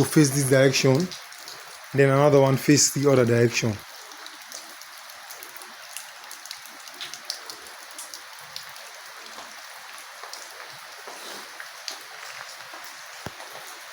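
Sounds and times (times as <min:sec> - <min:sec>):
steady hiss with small ticks: 0:03.8 - 0:13.9.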